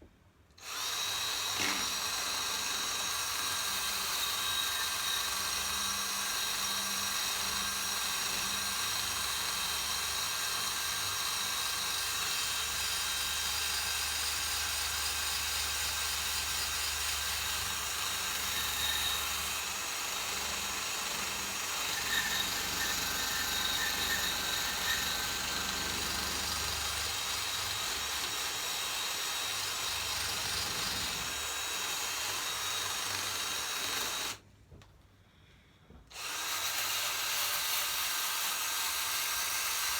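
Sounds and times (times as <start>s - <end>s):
power drill whirring: 0.6s - 34.4s, 36.1s - 39.9s.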